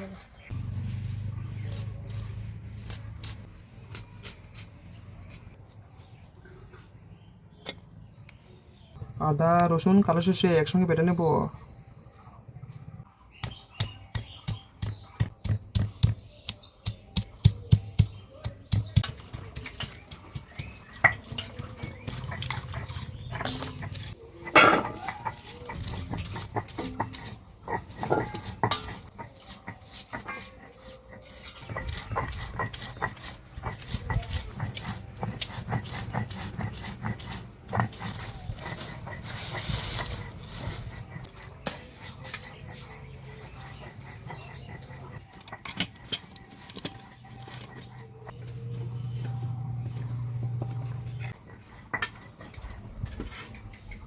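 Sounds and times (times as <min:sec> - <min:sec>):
spices being crushed by hand: 0:00.6 - 0:06.6, 0:13.4 - 0:42.7
stone grinding on stone slab: 0:19.8 - 0:48.4, 0:51.0 - 0:53.3.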